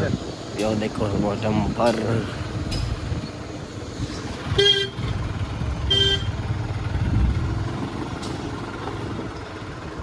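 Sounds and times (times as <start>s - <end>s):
engines rumbling: 0.0s - 10.0s
vehicle horn toots: 4.5s - 5.0s, 5.9s - 6.4s.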